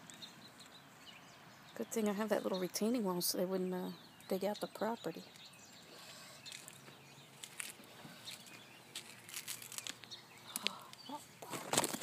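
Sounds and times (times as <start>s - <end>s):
puppies scratching and rustling in dirt: 5.2s - 12.0s.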